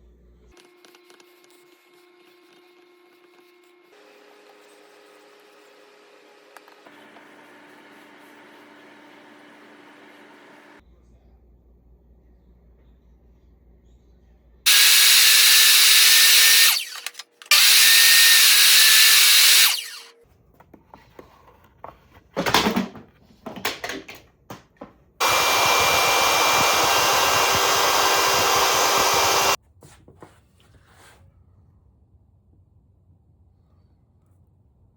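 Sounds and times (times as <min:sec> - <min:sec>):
woodworking power tool whining: 0:14.7 - 0:20.1, 0:25.2 - 0:29.6.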